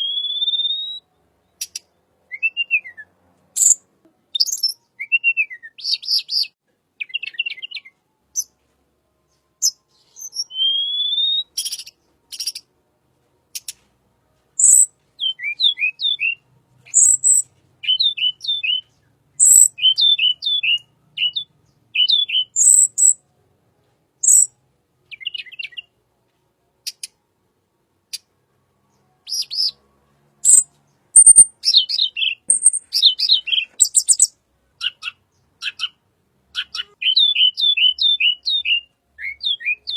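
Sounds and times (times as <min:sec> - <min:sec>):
bird chirping: 0:00.0 - 0:12.8, 0:13.4 - 0:13.9, 0:14.5 - 0:23.3, 0:24.2 - 0:26.0, 0:26.8 - 0:27.2, 0:28.0 - 0:39.9
bird rising whistle: 0:10.3 - 0:11.5.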